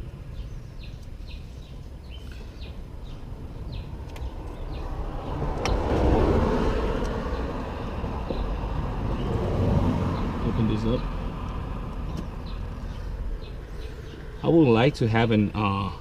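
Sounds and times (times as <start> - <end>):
vehicle passing on road: 1.3 - 15.0.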